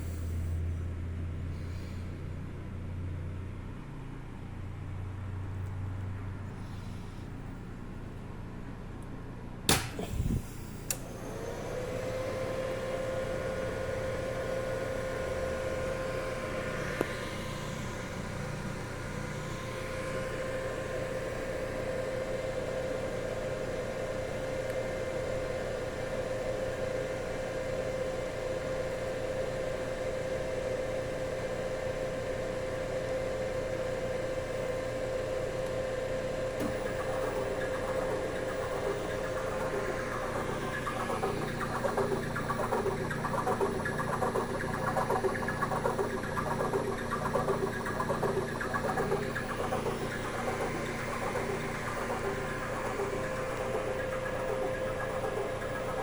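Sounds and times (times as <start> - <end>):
rough rapid pulsing: 36.7 - 56.0.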